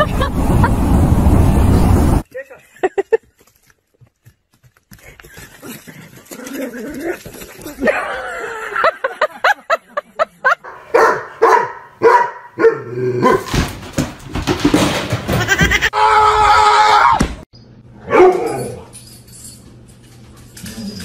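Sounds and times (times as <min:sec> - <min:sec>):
dog yelping and barking: 0:10.9 - 0:13.5, 0:18.0 - 0:18.8.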